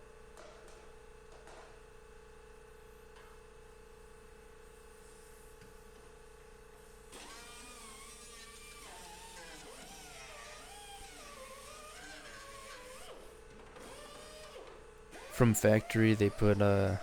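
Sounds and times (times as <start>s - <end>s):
power tool motor whine: 7.2s - 15.4s
electrical hum: 15.4s - 17.0s.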